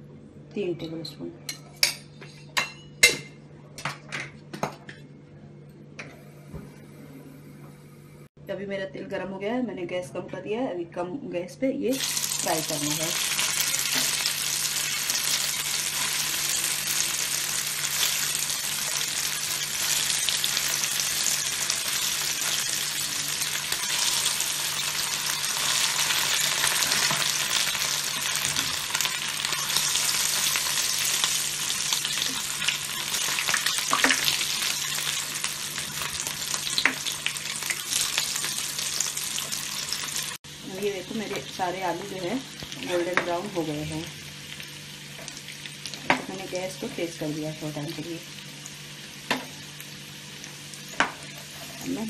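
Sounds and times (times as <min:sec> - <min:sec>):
potatoes sizzling in oil: 0:11.9 - 0:52.0.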